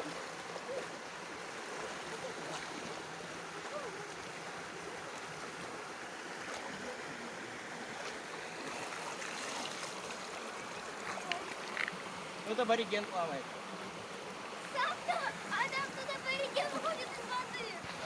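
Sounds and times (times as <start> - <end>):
waterfall rushing: 14.5 - 18.0.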